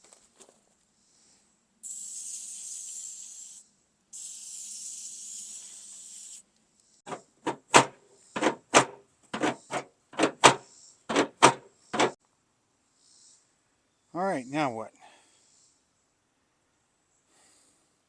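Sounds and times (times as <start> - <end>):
aerosol spray hissing: 1.8 - 3.6, 4.2 - 6.4
hinge creaking: 7.1 - 12.2.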